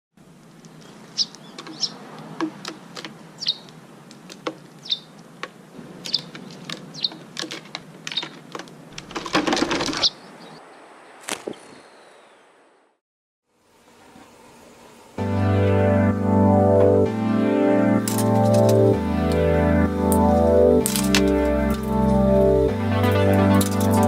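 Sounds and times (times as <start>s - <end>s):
rustling: 0.4s - 10.2s
small bird chirping: 0.6s - 5.3s, 6.0s - 7.4s, 8.0s - 8.4s, 9.9s - 10.7s.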